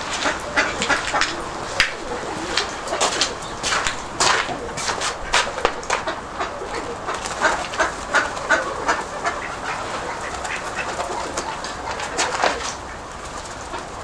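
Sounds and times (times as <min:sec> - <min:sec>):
pigeon wing flutters and clicks: 0:00.0 - 0:14.0
steady wind noise: 0:00.0 - 0:14.0.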